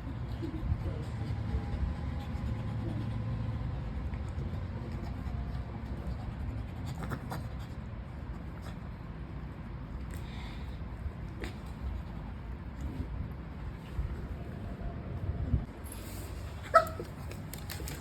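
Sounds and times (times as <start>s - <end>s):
puppy gnawing coconut husk: 16.7s - 18.0s.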